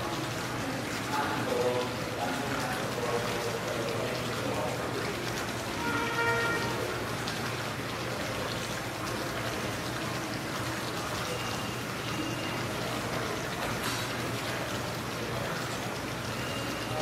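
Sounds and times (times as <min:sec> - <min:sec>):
faint voices: 0:00.0 - 0:17.0
indoor fountain splashing: 0:00.0 - 0:17.0.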